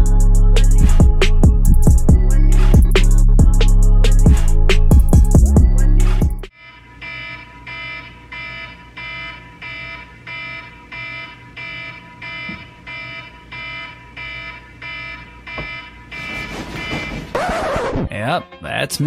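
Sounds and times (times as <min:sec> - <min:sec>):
alarm chiming beeps: 0:06.5 - 0:17.4.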